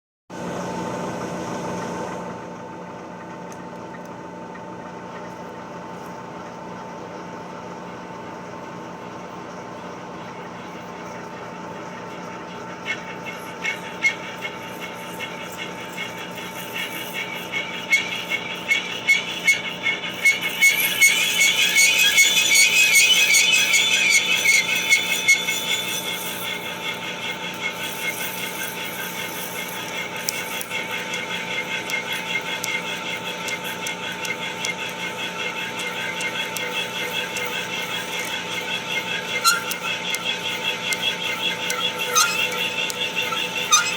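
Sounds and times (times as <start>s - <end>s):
machine humming: 3.4s - 43.9s
countersink squealing on steel: 12.8s - 43.9s.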